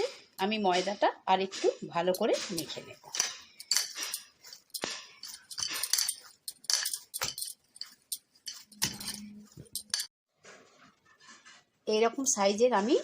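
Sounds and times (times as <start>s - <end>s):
light clinks: 2.6s - 10.1s.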